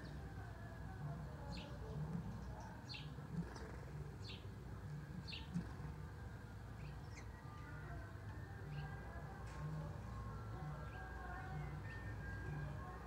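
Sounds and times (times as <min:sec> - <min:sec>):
faint low hum: 0:00.0 - 0:13.0
small birds chirping: 0:01.3 - 0:09.2.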